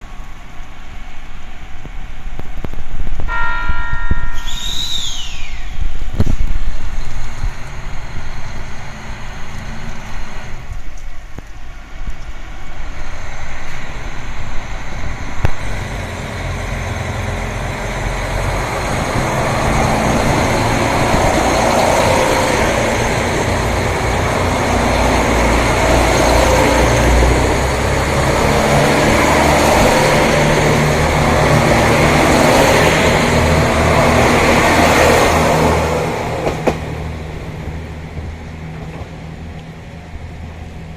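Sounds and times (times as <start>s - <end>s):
diesel train engines pulling away: 4.2s - 40.9s
wind buffeting microphone: 18.4s - 25.9s.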